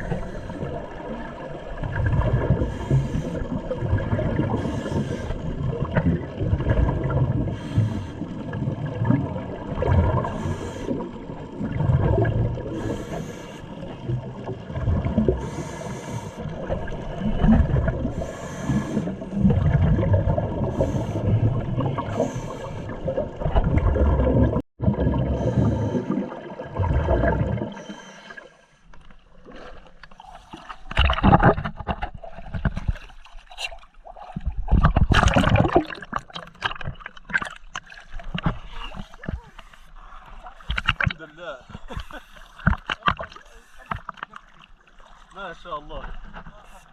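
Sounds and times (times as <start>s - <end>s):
diver breathing through regulator: 0.0s - 1.0s, 2.5s - 3.6s, 4.4s - 5.5s, 7.4s - 8.4s, 10.2s - 11.2s, 12.6s - 14.0s, 15.2s - 16.7s, 18.0s - 19.5s, 20.6s - 23.2s, 25.3s - 26.4s, 27.7s - 28.9s
underwater bubbles rumbling: 0.0s - 28.5s, 29.1s - 45.3s.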